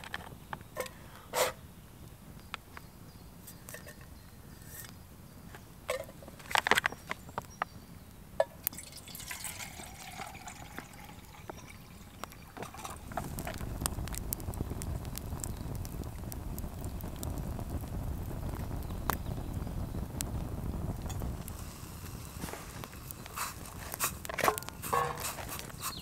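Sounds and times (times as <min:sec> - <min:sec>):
water pouring: 0:08.7 - 0:14.2, 0:21.4 - 0:26.0
cookware clicks and knocks: 0:24.4 - 0:25.4.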